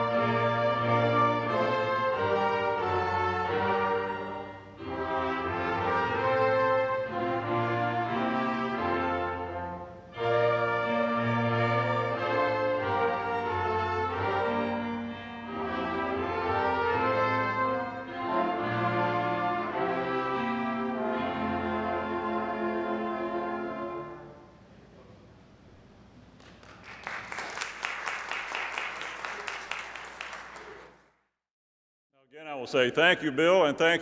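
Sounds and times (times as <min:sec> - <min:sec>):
small orchestra playing: 0:00.0 - 0:25.0.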